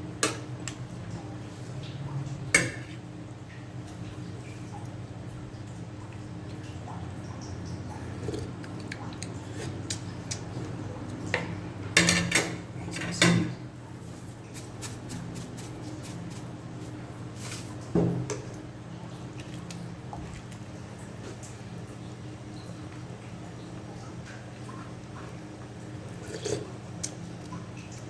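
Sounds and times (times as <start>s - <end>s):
pots and utensils clattering: 2.6s - 3.0s, 11.4s - 13.5s.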